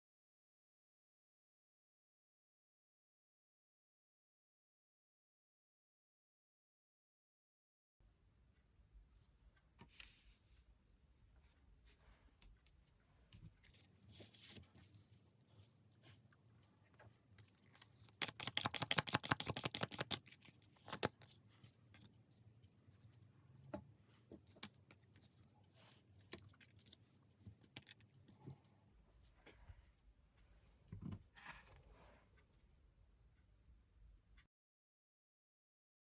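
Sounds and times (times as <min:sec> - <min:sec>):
cards being shuffled: 0:17.4 - 0:21.4.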